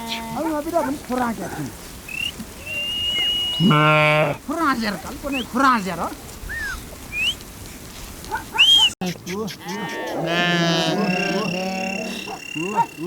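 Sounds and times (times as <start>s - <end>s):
sheep bleating: 0.0s - 0.7s, 2.6s - 4.5s, 9.5s - 13.0s.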